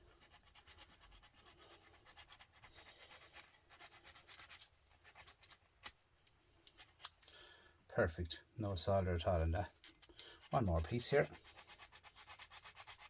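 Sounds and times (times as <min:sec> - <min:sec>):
file scraping copper pipe: 0:10.3 - 0:13.0.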